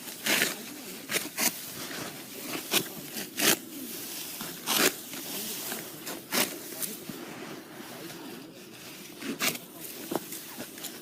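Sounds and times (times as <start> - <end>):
sickle cutting rice stalks: 0.0 - 11.0.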